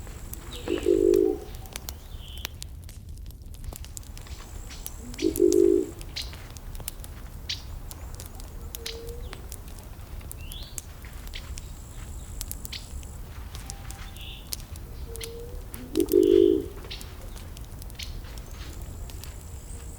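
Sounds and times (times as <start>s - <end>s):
campfire crackling and popping: 0.0s - 19.9s
bird chirps: 0.5s - 2.5s, 13.6s - 17.4s.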